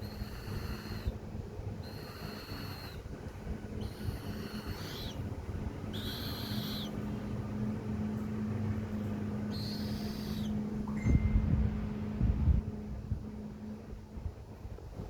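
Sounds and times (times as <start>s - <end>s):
falcon chick screeching: 0.0s - 1.2s, 1.8s - 3.1s, 3.7s - 7.0s, 9.5s - 10.6s
steady low hum: 0.0s - 15.0s.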